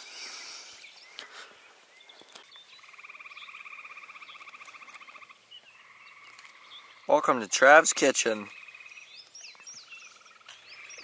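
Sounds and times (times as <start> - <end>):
frog trilling: 2.8 - 9.1.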